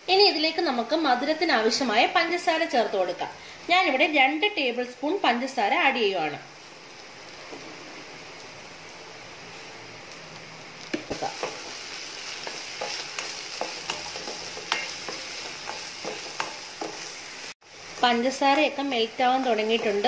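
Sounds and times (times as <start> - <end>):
food sizzling in a pan: 0.0 - 20.0
spatula scraping and tapping pan: 10.9 - 17.2.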